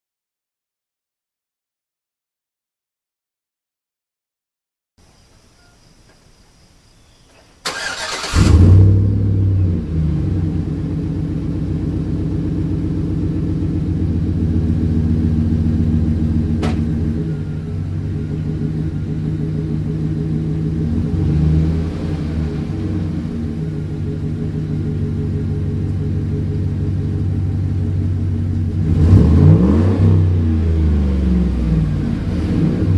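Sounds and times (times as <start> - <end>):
v eight engine idling: 7.7 - 32.9.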